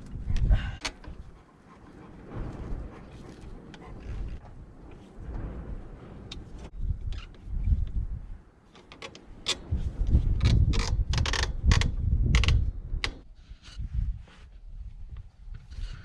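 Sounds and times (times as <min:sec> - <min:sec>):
low rumble: 0:00.0 - 0:08.6, 0:09.6 - 0:13.1
clicks and knocks of tools: 0:08.7 - 0:09.8.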